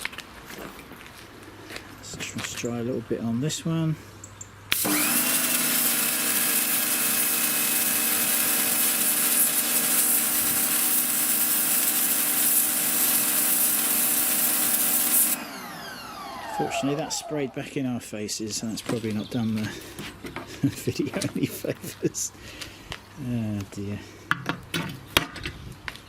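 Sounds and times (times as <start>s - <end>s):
high-pressure water spray hissing: 4.7s - 15.4s
pressure washer motor humming: 4.7s - 17.8s.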